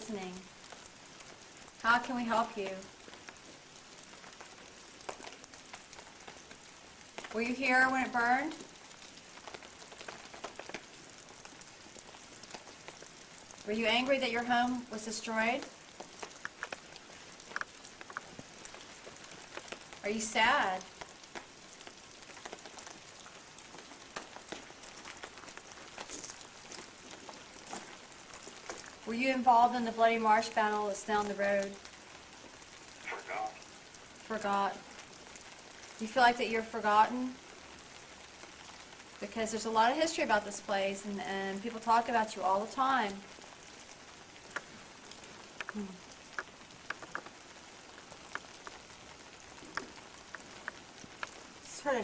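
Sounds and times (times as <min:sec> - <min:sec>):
steady rain falling: 0:00.0 - 0:52.0
drops ticking on stones: 0:15.6 - 0:20.0, 0:20.8 - 0:29.0, 0:44.4 - 0:51.4
drops ticking close by: 0:44.4 - 0:51.4.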